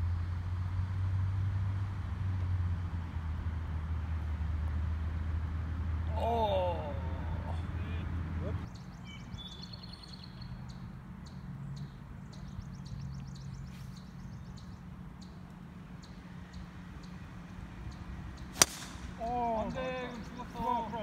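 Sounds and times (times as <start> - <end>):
low steady hum: 0.0 - 21.0
birds chirping: 5.1 - 21.0.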